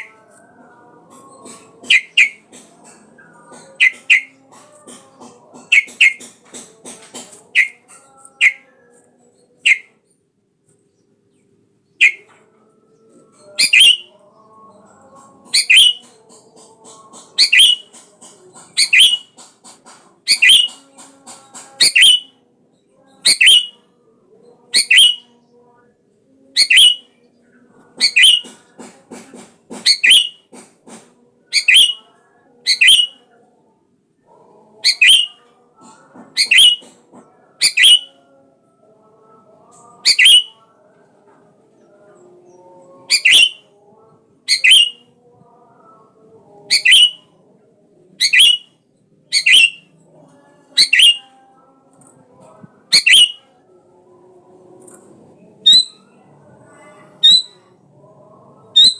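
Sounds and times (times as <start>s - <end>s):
bird calling bright notes: 3.8s - 4.3s, 7.6s - 7.8s, 12.0s - 12.2s, 50.8s - 51.2s, 52.9s - 53.4s.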